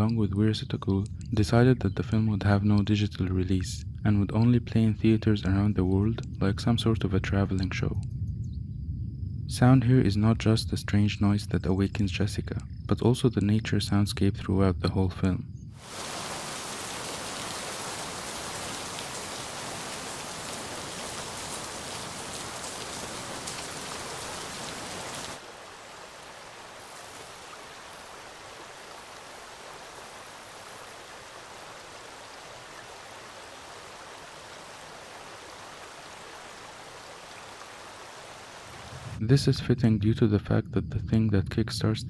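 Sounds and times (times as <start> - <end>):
steady rain hiss: 15.7 - 39.3.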